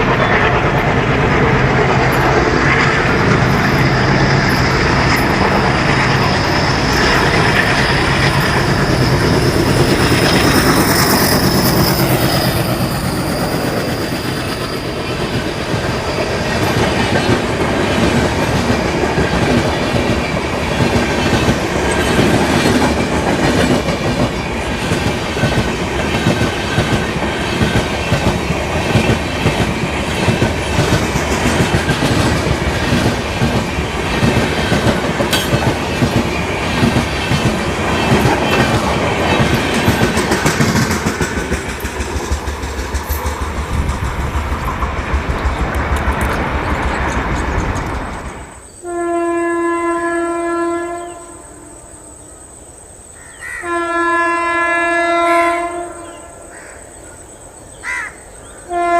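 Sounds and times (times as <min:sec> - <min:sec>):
train wheels clattering over rail joints: 0:00.0 - 0:48.6
locomotive horn blast: 0:48.8 - 0:51.9, 0:53.6 - 0:56.4, 0:58.7 - 0:58.9.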